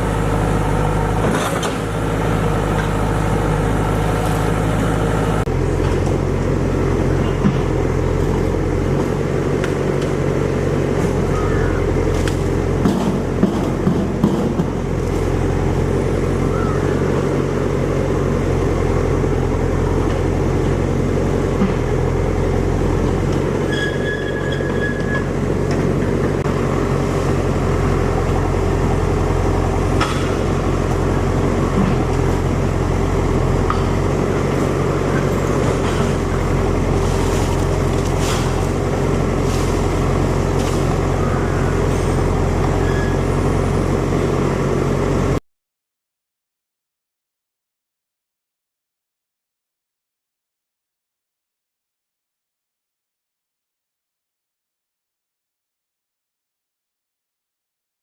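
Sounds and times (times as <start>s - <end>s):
low engine hum: 0.0s - 45.4s.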